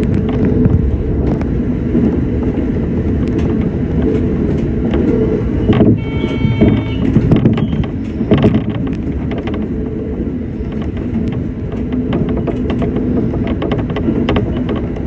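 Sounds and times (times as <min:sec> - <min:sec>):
electric train rumble: 0:00.0 - 0:15.0
wheels clicking on track: 0:00.0 - 0:15.0
high ringing tone: 0:05.7 - 0:07.9.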